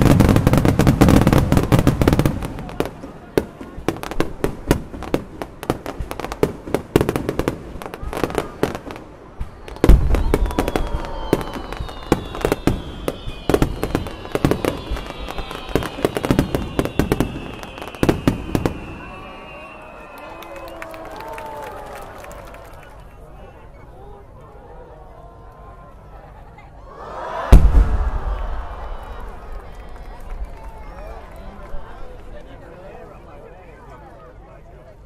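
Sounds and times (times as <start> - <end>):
fireworks heavy boom: 0.0 - 19.5, 27.4 - 31.3
fireworks crackling: 0.0 - 19.9
high falling whistles: 10.1 - 20.8.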